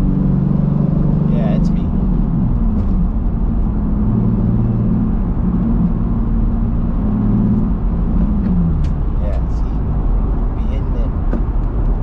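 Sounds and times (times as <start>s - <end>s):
car engine from inside cabin: 0.0s - 12.0s
low road rumble: 0.0s - 12.0s.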